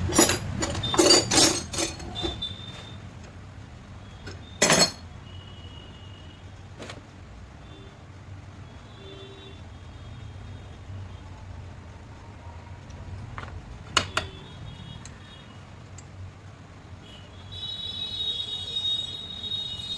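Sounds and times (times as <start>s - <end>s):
metal clank: 0.0s - 2.8s, 4.3s - 5.0s
faint metallic rings: 0.0s - 3.0s, 4.3s - 5.0s.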